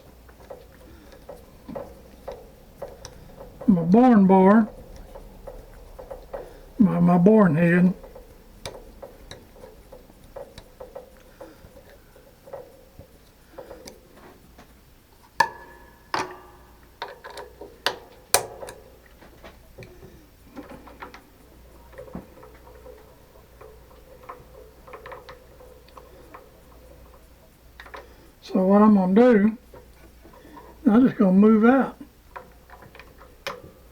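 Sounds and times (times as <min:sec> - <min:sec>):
metal clank: 0:00.0 - 0:27.0
faint steady hum: 0:00.0 - 0:33.9
metal tools clicking and tapping: 0:00.0 - 0:33.9.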